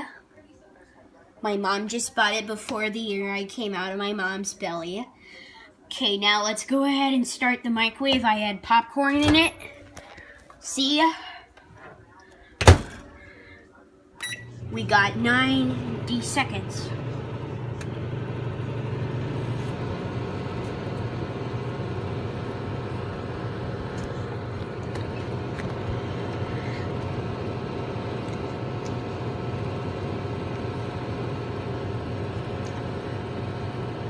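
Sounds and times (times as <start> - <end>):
microwave oven humming: 12.6 - 13.4, 14.2 - 34.0.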